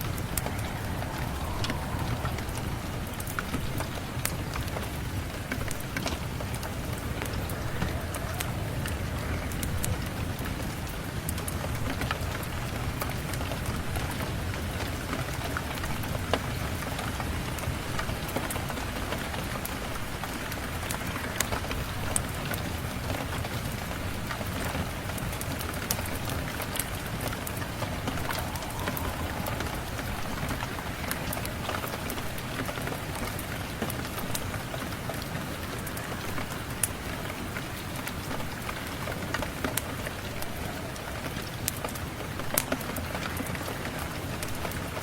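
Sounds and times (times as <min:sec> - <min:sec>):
fireplace crackling: 0:00.0 - 0:10.4, 0:25.8 - 0:42.7
steady rain falling: 0:00.0 - 0:45.0.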